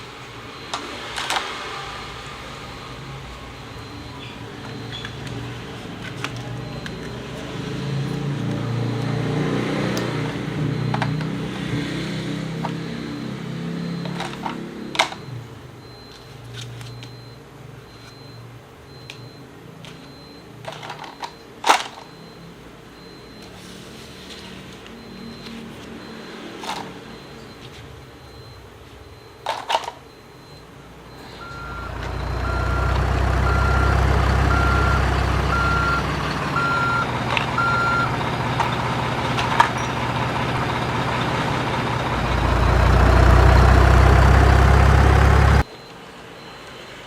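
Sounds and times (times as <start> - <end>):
reversing alarm beeping: 0.0 - 47.0
truck engine rumble: 2.1 - 16.1, 30.1 - 45.7.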